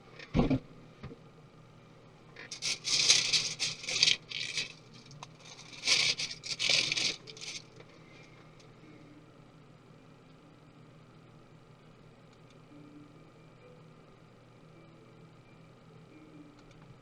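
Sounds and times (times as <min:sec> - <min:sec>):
tools scraping and rattling: 0:02.4 - 0:07.7.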